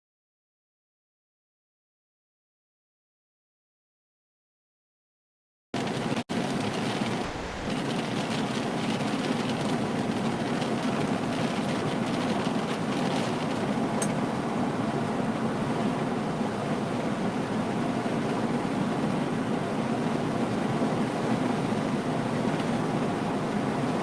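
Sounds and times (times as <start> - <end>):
rain against a vehicle: 5.8 - 24.0
tornado wind roaring: 5.8 - 24.0.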